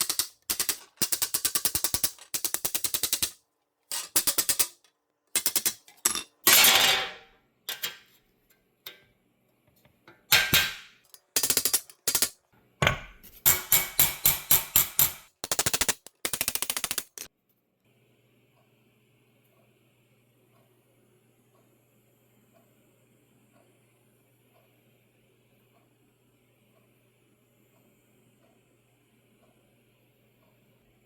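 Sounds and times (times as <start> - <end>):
rapid mechanical tapping: 0.0 - 6.2, 10.4 - 12.4, 13.5 - 17.3.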